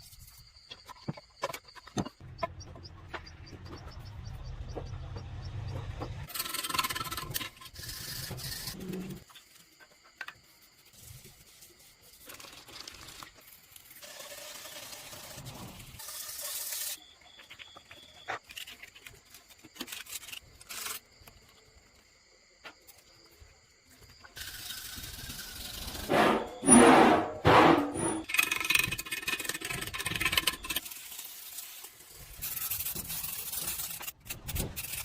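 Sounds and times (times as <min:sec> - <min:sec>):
scraping and rubbing: 0:06.2 - 0:17.0, 0:24.3 - 0:35.0.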